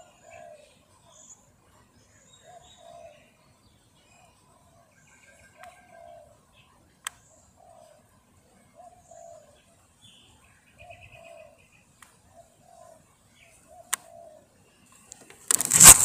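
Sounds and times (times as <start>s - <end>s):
birds cooing: 0.0s - 0.8s, 2.4s - 3.3s, 4.2s - 6.5s, 7.5s - 8.1s, 8.7s - 9.6s, 10.8s - 11.7s, 12.3s - 14.6s
loud burst of noise: 15.5s - 16.0s.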